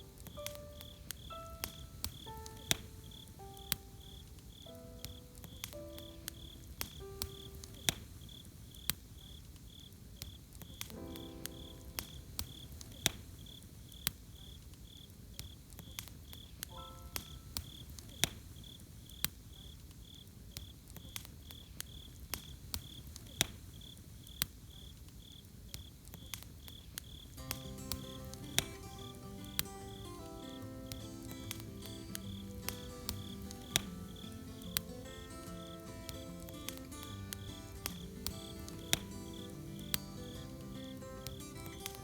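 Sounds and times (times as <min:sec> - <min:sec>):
soft musical notes: 0:00.0 - 0:07.9, 0:10.9 - 0:12.9, 0:16.7 - 0:17.6, 0:27.4 - 0:42.0
campfire crackling: 0:00.0 - 0:42.0
cricket chirping: 0:00.0 - 0:42.0.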